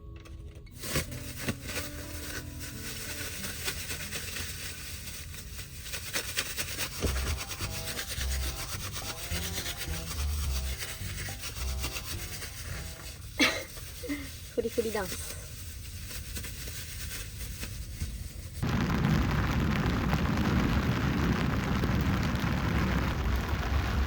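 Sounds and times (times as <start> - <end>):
soft background music: 0.0 - 5.2
plastic bag scrunching: 0.8 - 24.0.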